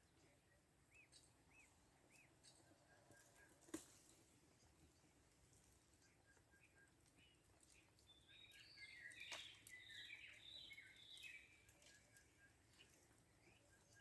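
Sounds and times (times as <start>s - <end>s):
birds chirping and trilling: 6.0s - 14.0s.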